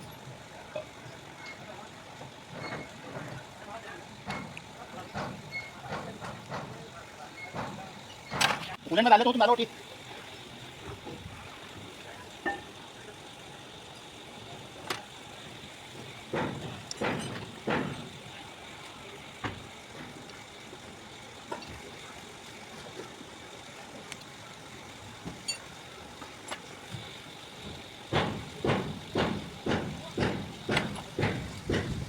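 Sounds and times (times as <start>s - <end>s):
tools knocking on metal: 16.3s - 18.1s, 28.1s - 32.0s.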